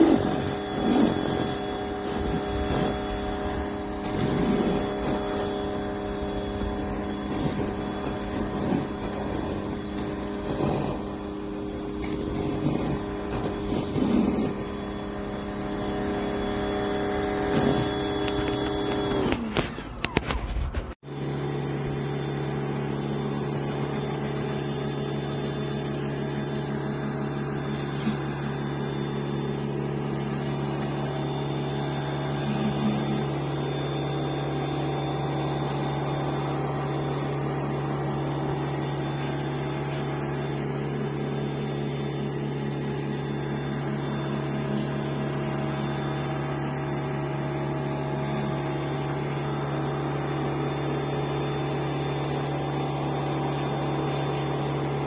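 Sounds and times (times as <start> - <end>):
electric pressure washer humming: 0.0 - 55.0.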